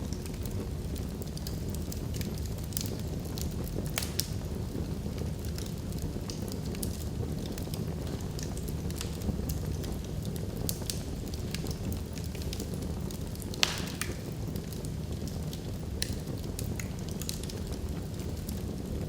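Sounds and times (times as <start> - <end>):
low rumble of flames: 0.0 - 19.0
logs crackling and snapping: 0.2 - 4.4, 5.5 - 18.6
loud pop with hiss: 13.6 - 14.2.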